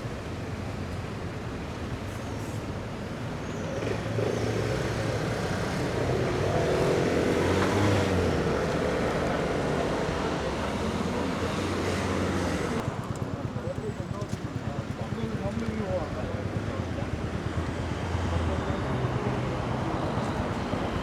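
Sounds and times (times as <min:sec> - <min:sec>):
traffic hum: 0:00.0 - 0:21.0.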